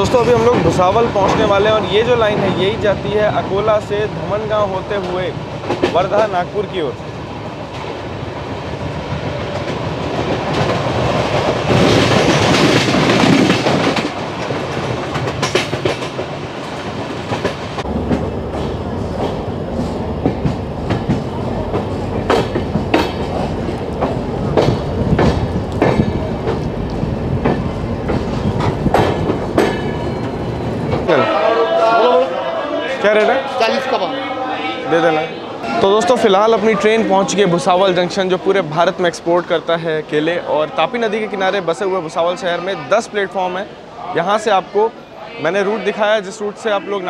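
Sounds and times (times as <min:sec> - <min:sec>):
passenger train rumbling: 0:00.0 - 0:47.0
wheels clattering over rail joints: 0:09.1 - 0:31.1.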